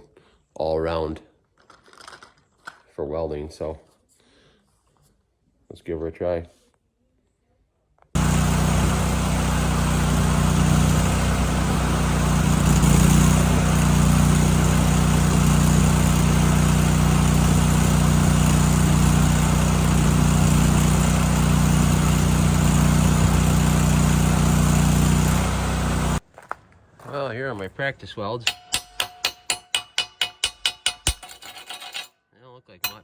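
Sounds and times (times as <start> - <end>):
welder gas engine running: 8.2 - 26.2
welding arc hissing: 8.2 - 26.2.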